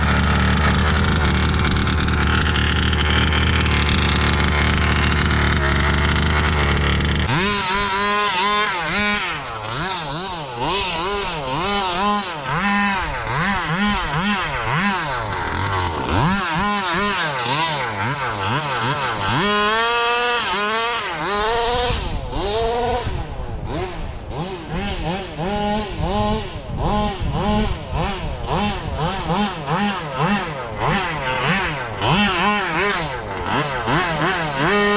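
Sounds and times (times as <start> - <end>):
small two-stroke engine revving: 0.0 - 34.9.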